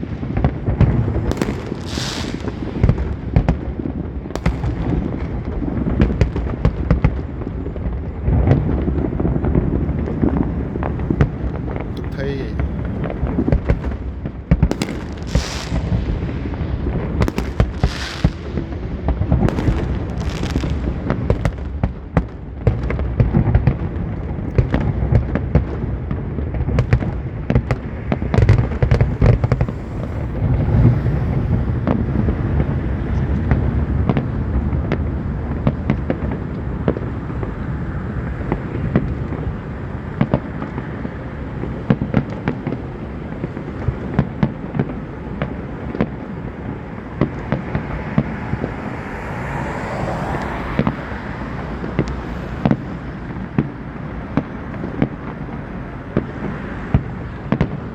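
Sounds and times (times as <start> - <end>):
fireworks booming: 0.0 - 57.9
fireworks crackling: 0.0 - 57.9
fireworks hissing fizzes: 0.9 - 3.3, 14.7 - 21.5.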